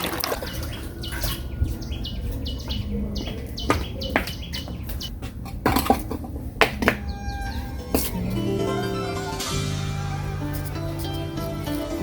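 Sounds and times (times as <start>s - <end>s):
bird chirping: 0.3s - 5.2s, 6.7s - 12.0s
sharp knocks: 3.2s - 8.2s.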